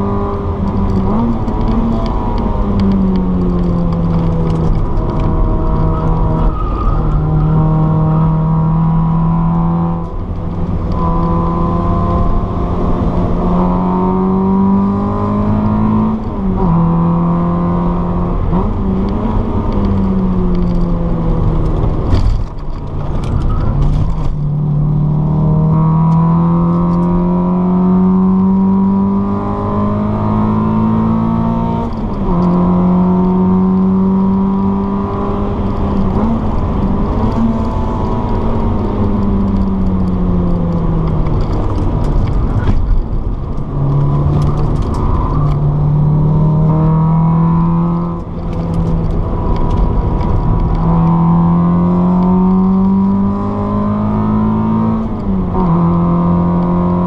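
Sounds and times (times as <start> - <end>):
car engine accelerating hard: 0.0 - 57.0.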